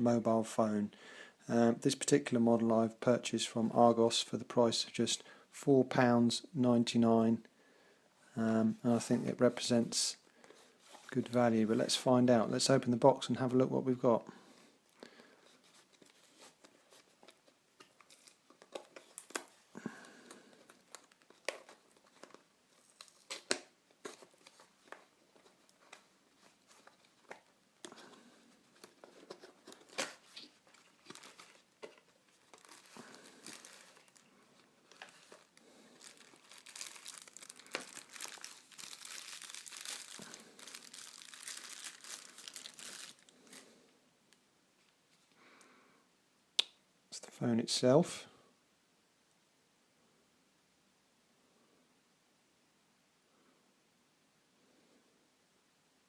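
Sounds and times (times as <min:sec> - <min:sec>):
packaging crinkling: 0:15.7 - 0:43.7.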